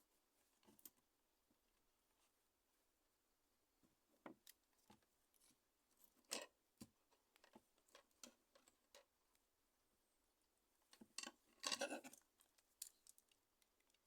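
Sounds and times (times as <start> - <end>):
small tools clicking and tapping: 11.0 - 14.0.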